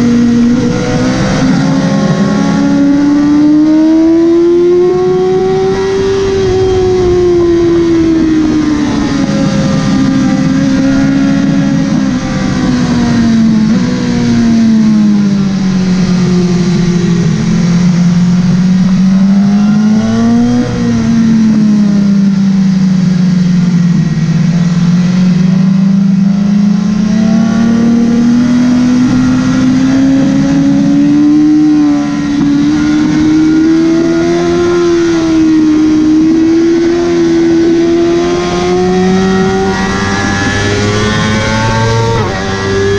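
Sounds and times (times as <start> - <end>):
wind rush: 0.0 - 22.3
motorcycle engine running hard: 0.0 - 42.9.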